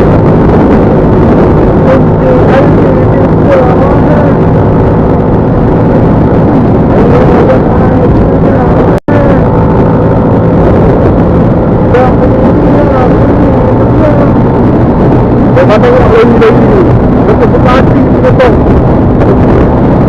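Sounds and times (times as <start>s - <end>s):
vehicle engine and road noise: 0.0s - 20.0s.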